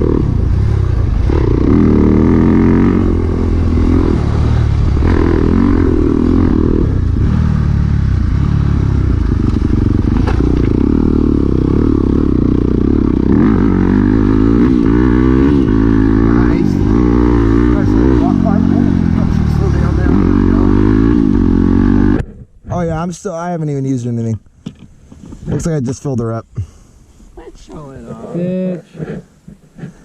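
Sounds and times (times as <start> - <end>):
dirt bike engine revving: 0.0 - 22.3.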